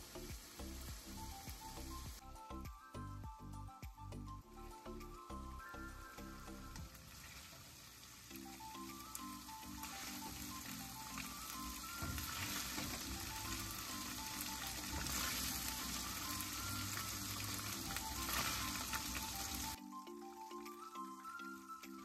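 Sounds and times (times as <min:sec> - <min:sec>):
chicken sizzling in hot oil: 0:00.0 - 0:02.2, 0:06.8 - 0:19.8.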